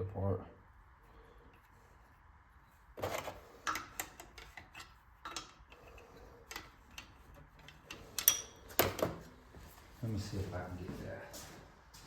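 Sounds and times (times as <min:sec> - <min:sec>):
metal tools clicking and knocking: 0:03.1 - 0:09.2.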